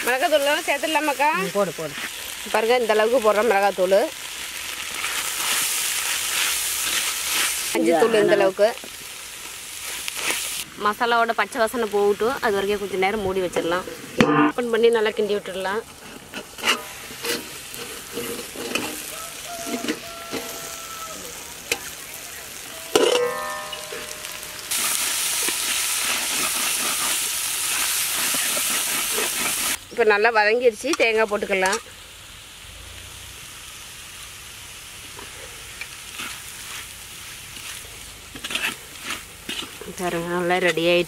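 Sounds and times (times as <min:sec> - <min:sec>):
food sizzling in a covered pan: 0:00.0 - 0:41.0
ladle scraping wok: 0:15.9 - 0:20.8, 0:22.8 - 0:29.8, 0:35.2 - 0:41.0
metal lid clinking: 0:22.9 - 0:24.8.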